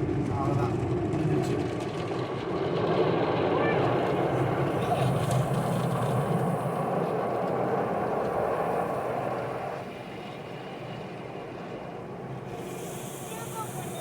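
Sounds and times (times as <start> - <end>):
car wash machinery running: 3.8 - 14.0.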